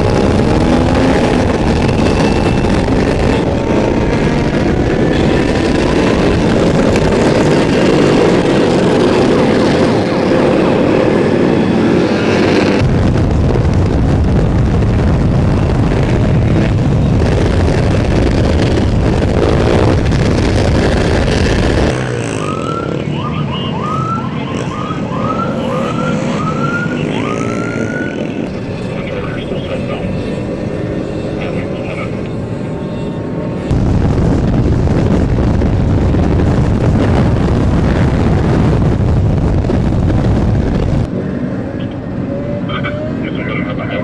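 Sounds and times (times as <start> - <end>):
police siren: 0.0 - 6.6, 22.2 - 33.3
dirt bike engines revving: 0.0 - 13.0, 15.2 - 33.7.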